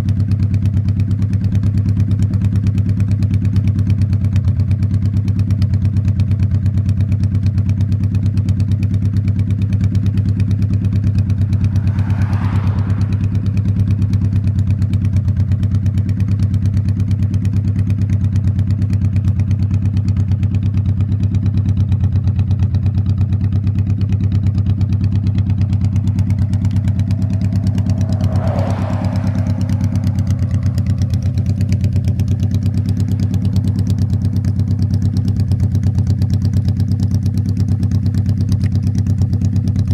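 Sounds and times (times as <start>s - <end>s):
motorcycle engine cruising: 9.5s - 39.9s
passing vehicle whoosh: 10.0s - 16.4s, 23.9s - 37.0s.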